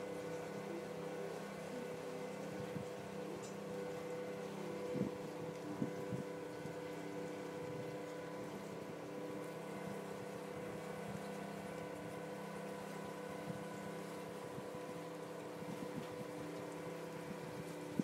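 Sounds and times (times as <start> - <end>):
boat motor droning: 0.0 - 18.0
wind: 0.0 - 18.0.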